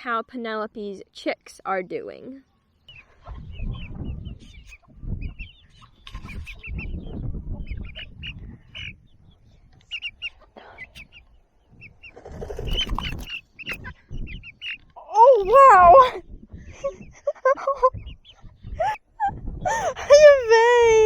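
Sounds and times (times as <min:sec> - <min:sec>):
chicks peeping: 0:02.9 - 0:20.6.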